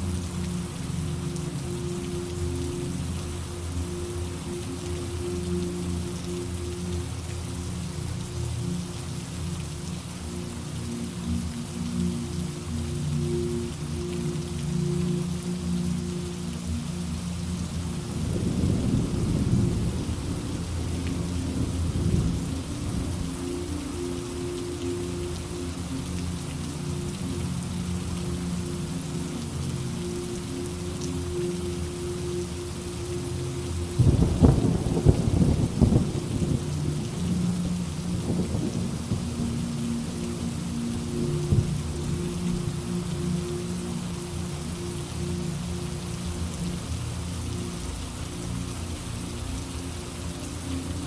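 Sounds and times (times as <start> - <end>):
steady rainfall: 0.0 - 51.0
thunder rumbling: 18.2 - 23.2, 34.0 - 39.6
thunderclap rumbling: 34.0 - 36.6.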